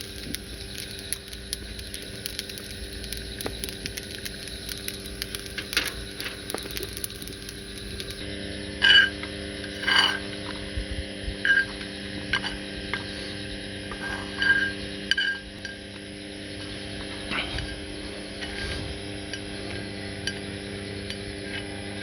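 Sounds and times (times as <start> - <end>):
metal spoon clinking on metal cup: 9.7 - 10.2.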